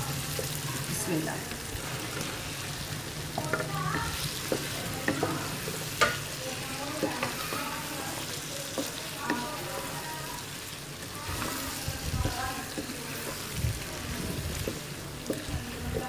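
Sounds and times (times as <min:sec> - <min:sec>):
food sizzling in a wok: 0:00.0 - 0:16.0
wooden spatula knocking and scraping: 0:03.3 - 0:06.3, 0:11.3 - 0:16.0.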